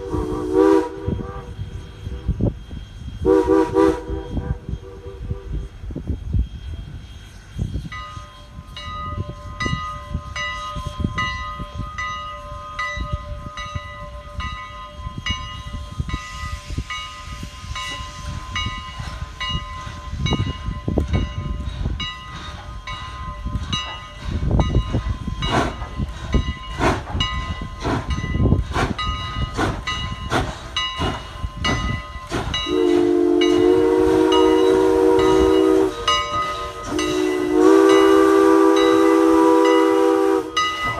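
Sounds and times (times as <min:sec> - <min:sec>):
steam whistle blast: 0:00.0 - 0:02.3, 0:03.2 - 0:05.7, 0:32.6 - 0:40.9
steam locomotive exhaust chuffs: 0:00.0 - 0:40.9
locomotive bell ringing: 0:06.2 - 0:40.9.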